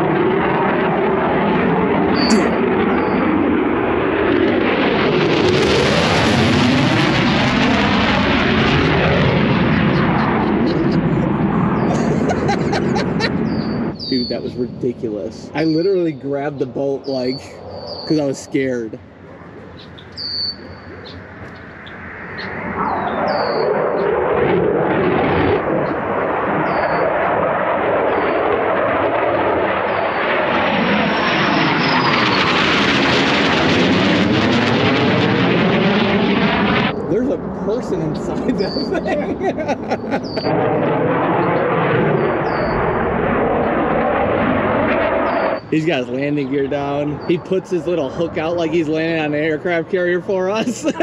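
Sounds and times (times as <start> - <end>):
fighter jet passing overhead: 0.0 - 51.0
bird whistled call: 19.8 - 21.2, 22.4 - 23.6.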